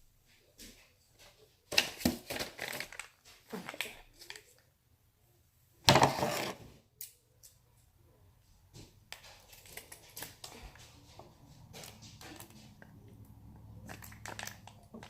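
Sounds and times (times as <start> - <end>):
craft supplies crinkling and clattering: 1.7 - 4.6, 5.9 - 6.7, 9.1 - 13.2, 13.8 - 15.0.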